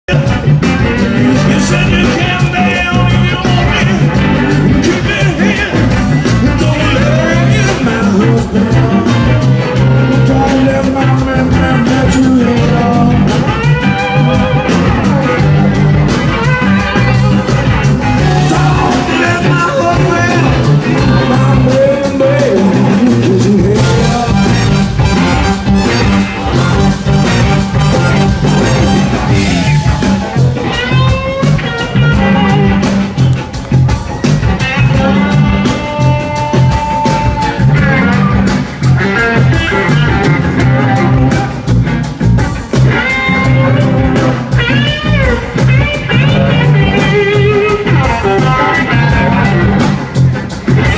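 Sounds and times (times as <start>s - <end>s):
guitar-led band music: 0.0s - 50.9s.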